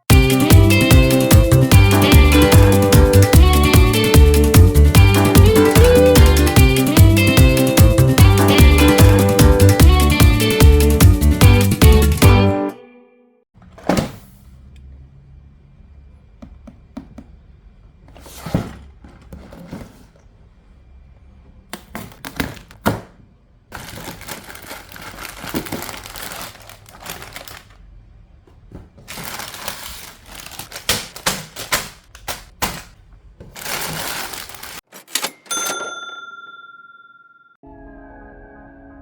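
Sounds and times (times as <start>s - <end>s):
plastic bags crinkling: 23.7s - 27.9s, 28.7s - 34.9s.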